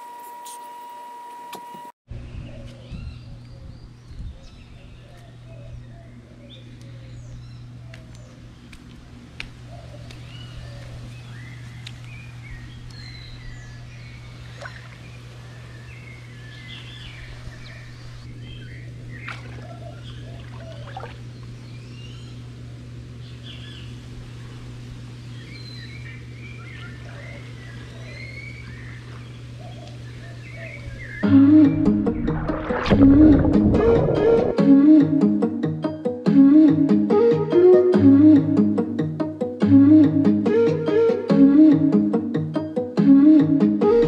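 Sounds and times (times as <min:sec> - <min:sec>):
birds chirping: 0:02.2 - 0:22.4
low hum: 0:31.2 - 0:34.8
music: 0:31.2 - 0:44.0.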